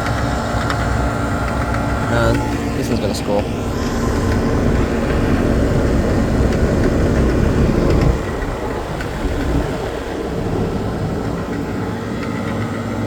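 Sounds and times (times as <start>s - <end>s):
compressor low hum: 0.0s - 13.0s
condenser fan: 0.0s - 13.0s.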